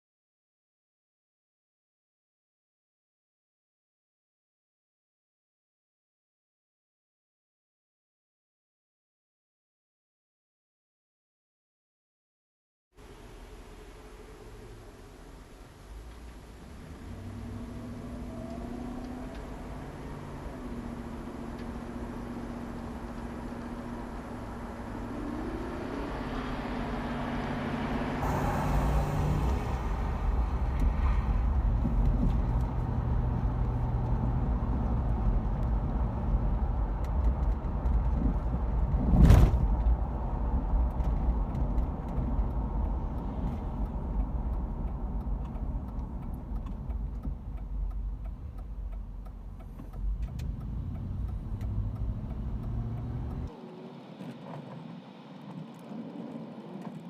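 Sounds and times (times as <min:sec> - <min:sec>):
car engine: 0:13.0 - 0:57.0
road noise: 0:13.0 - 0:57.0.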